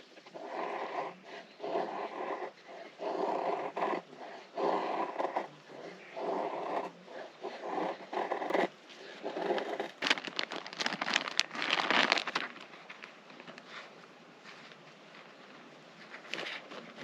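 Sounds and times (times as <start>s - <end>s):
rustling and crinkling material: 8.5s - 17.0s.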